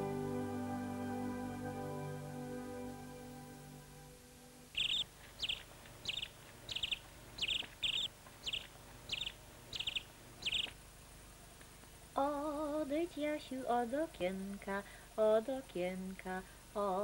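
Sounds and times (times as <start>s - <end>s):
bird calling with falling note: 4.8s - 10.8s.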